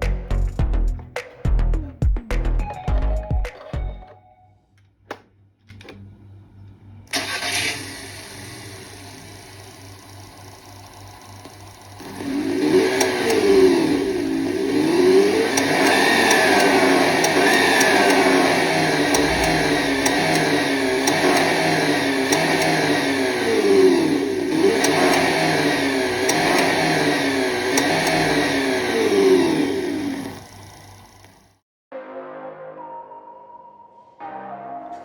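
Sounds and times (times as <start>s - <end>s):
simulated engine sound revving: 12.0s - 31.3s.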